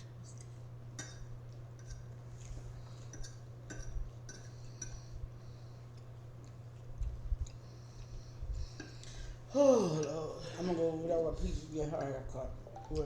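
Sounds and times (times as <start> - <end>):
low electrical hum: 0.0 - 13.0
cutlery clinking against a dish: 0.9 - 2.2, 2.9 - 5.1.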